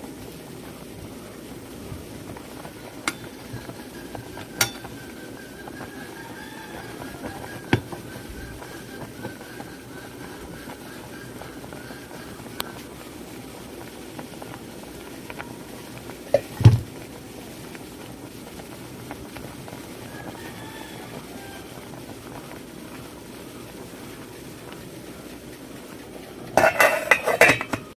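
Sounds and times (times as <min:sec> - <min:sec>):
low background noise: 0:00.0 - 0:28.0
pots and utensils clattering: 0:02.9 - 0:09.7, 0:16.3 - 0:16.9, 0:26.5 - 0:28.0.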